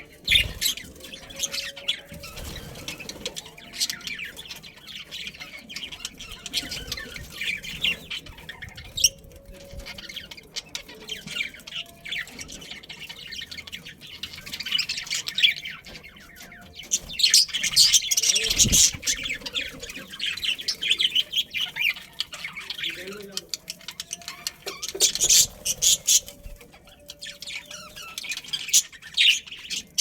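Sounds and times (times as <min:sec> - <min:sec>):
budgerigars chirping and chattering: 0:00.0 - 0:30.0.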